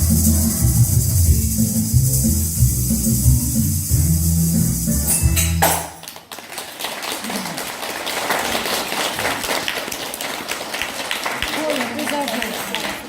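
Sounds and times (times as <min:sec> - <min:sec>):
instrumental ensemble music: 0:00.0 - 0:06.1
audience applause: 0:06.0 - 0:13.0.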